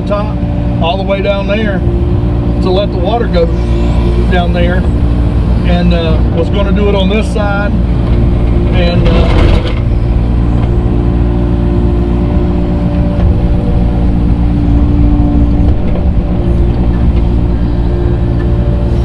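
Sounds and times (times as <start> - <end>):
tractor engine running: 0.0 - 19.0
short clatter: 8.0 - 11.0.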